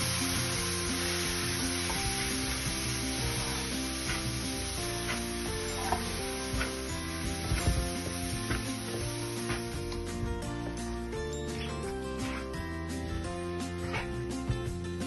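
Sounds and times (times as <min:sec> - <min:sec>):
nuts sizzling in a wok: 0:00.0 - 0:11.3
metal spatula scraping a wok: 0:03.2 - 0:07.7.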